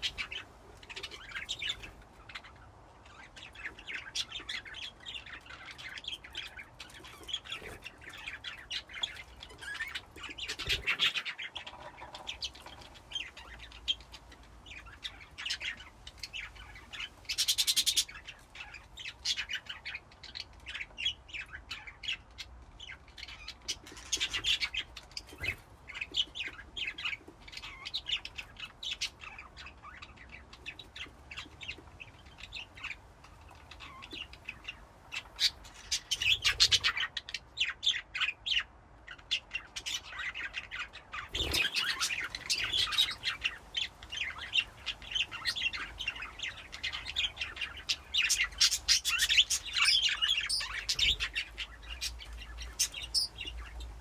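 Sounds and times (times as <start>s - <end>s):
budgerigars chirping and chattering: 0.0s - 54.0s.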